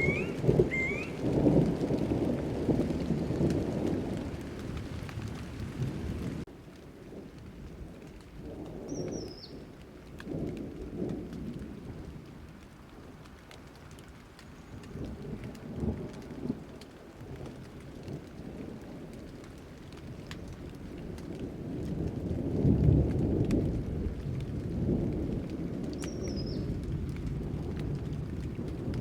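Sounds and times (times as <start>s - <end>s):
high falling chirp: 0.0s - 1.2s
thunder rolling: 0.0s - 6.5s, 21.5s - 29.0s
rain drops ticking: 0.0s - 29.0s.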